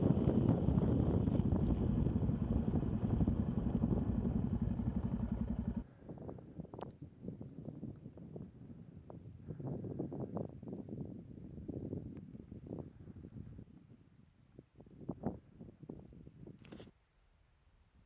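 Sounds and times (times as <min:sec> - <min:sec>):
motorcycle engine running: 0:00.0 - 0:05.8.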